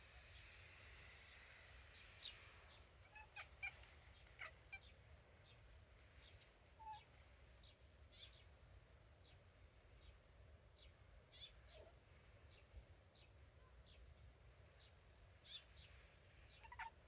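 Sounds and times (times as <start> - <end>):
faint bird calls: 0.3 - 8.5, 14.8 - 17.0.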